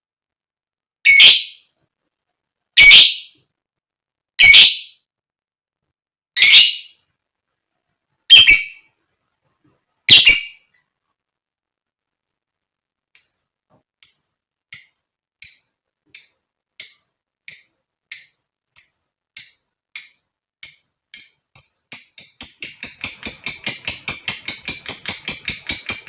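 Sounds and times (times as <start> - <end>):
lovebird squawking: 1.1 - 1.6, 2.8 - 3.3, 6.4 - 6.9, 8.3 - 8.8, 10.1 - 10.6.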